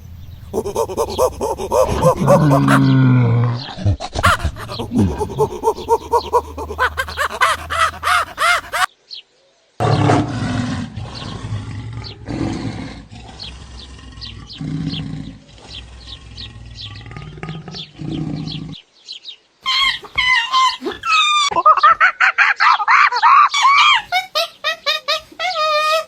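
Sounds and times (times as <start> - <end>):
small birds chirping: 0.0 - 9.8, 13.2 - 21.9
fast short animal calls: 0.5 - 3.0, 4.1 - 8.9
low drawn-out animal calls: 0.5 - 8.9.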